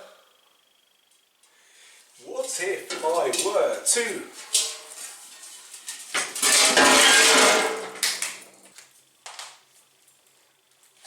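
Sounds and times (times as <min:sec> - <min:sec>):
metal tank clattering and scraping: 0:02.5 - 0:08.6.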